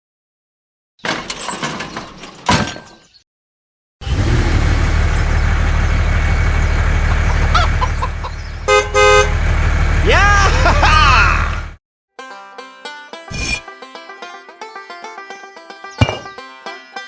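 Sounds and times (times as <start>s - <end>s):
truck engine drone: 4.0s - 11.8s
honk-like blasts: 8.7s - 9.4s.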